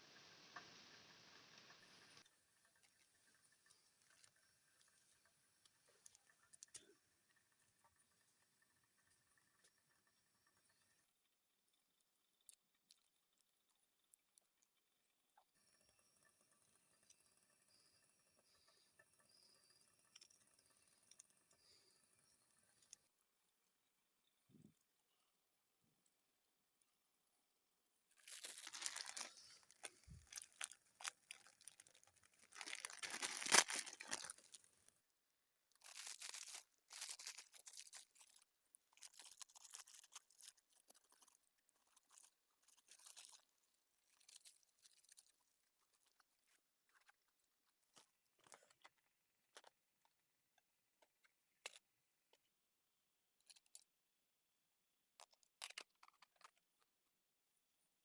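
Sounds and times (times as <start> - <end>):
rustling and crunching handling noises: 28.2 - 34.9, 35.7 - 49.8.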